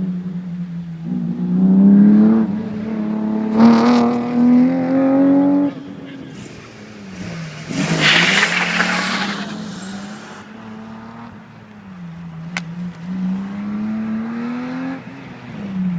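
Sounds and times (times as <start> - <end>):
car engine accelerating: 0.7 - 15.9
loud rushing noise: 6.4 - 10.6.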